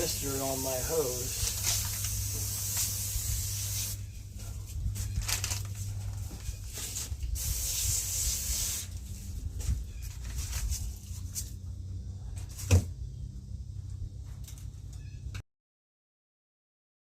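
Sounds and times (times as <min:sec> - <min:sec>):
brush scrubbing wet concrete: 0:00.0 - 0:02.8
hose mister spraying: 0:00.0 - 0:05.8, 0:06.4 - 0:11.5.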